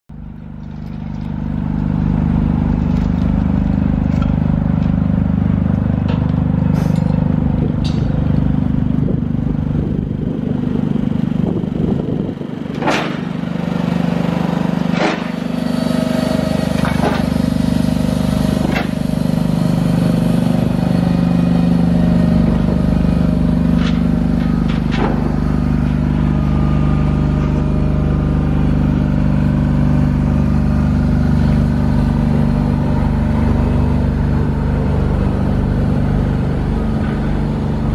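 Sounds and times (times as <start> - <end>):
generator engine humming: 0.1 - 37.9.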